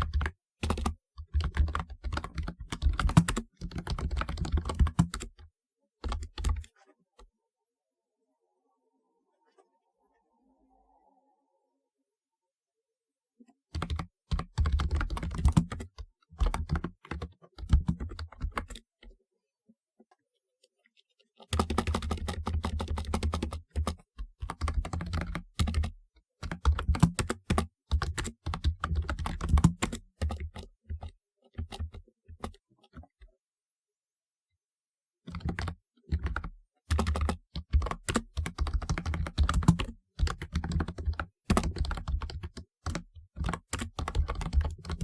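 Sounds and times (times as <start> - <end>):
fast typing on keyboard: 0.0 - 6.7, 13.7 - 18.8, 21.4 - 33.1, 35.3 - 45.0.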